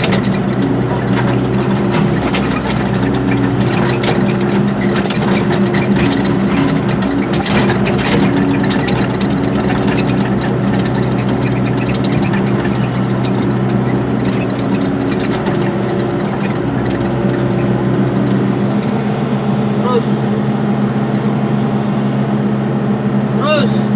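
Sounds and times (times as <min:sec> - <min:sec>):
metallic clanking and rattling: 0:00.0 - 0:19.0
excavator diesel engine running: 0:00.0 - 0:23.4.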